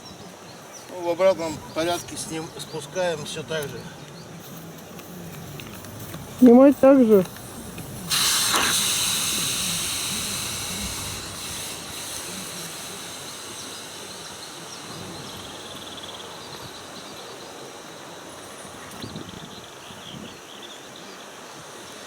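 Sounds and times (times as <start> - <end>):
air hissing out of a valve: 4.4 - 17.1.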